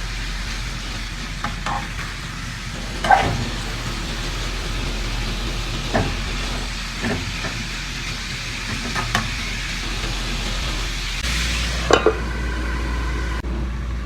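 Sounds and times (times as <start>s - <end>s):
meat sizzling in a pan: 0.0s - 12.8s
utensil scraping a pan: 1.4s - 2.1s, 3.0s - 3.9s.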